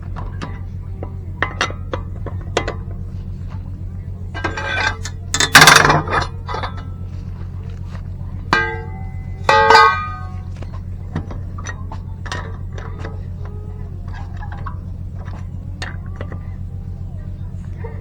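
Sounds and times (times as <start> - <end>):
steady low hum: 0.0 - 18.0
metal tools clinking: 4.3 - 7.9, 8.5 - 13.5
ringing metallic strikes: 8.5 - 10.6.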